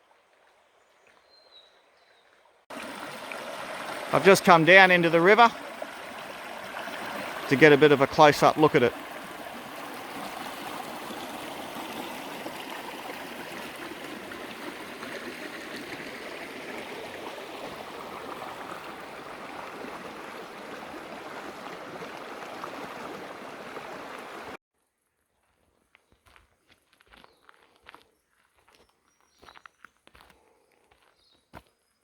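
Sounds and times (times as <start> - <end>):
river water rushing: 2.7 - 24.6.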